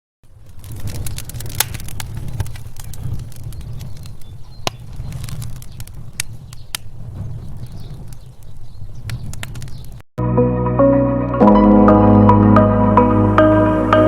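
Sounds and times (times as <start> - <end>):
sharp clicks and pops: 0.2 - 10.0
soft mallet percussion music: 10.2 - 14.0.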